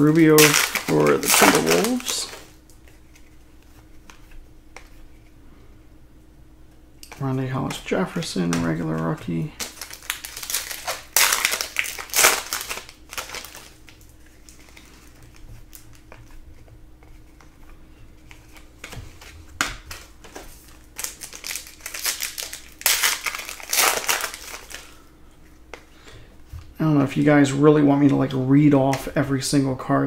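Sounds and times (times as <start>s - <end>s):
wrappers tearing and crinkling: 0.0s - 3.3s, 8.4s - 16.4s, 18.2s - 25.0s
cards being handled: 0.0s - 5.4s, 7.0s - 25.9s.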